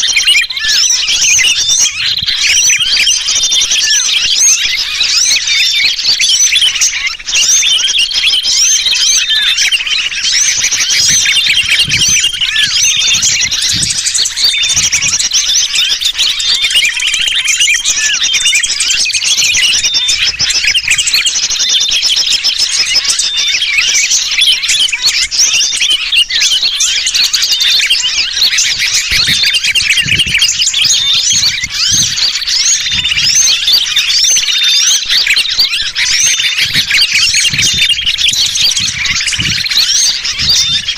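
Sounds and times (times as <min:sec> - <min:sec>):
bird distress calls: 0:00.0 - 0:40.9
many small birds chirping: 0:00.0 - 0:40.9.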